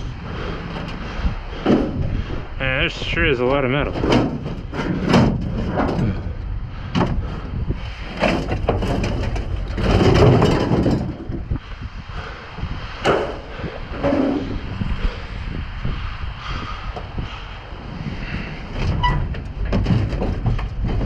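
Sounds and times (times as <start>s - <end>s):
wind rumble on microphone: 0.0s - 21.0s
scrap metal clanking and scraping: 0.4s - 2.2s, 3.6s - 11.6s, 13.0s - 14.5s, 18.4s - 21.0s.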